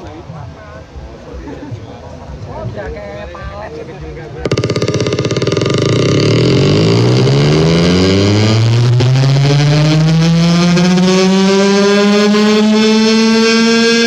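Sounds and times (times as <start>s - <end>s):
noisemaker howling rising tone: 4.5s - 14.0s.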